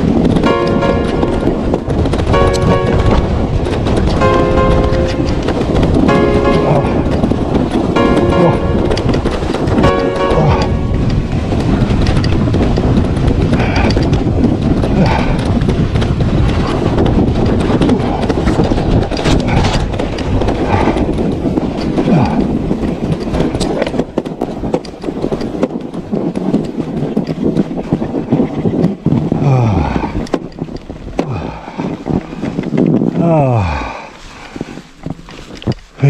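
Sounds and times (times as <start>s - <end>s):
bike tyres rumbling over snow: 0.0s - 36.0s
snow-packed chain clicking: 11.0s - 29.3s.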